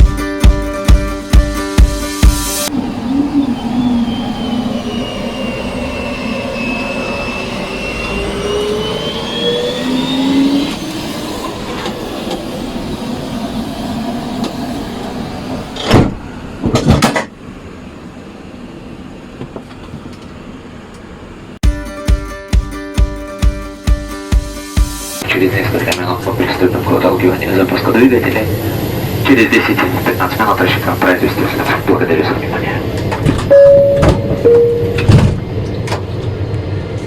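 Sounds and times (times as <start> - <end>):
engine rumble with gliding whine: 2.6 - 21.6, 25.2 - 37.0
heavy door clunks: 15.8 - 17.3, 33.2 - 36.0
cabin hum: 32.9 - 37.0.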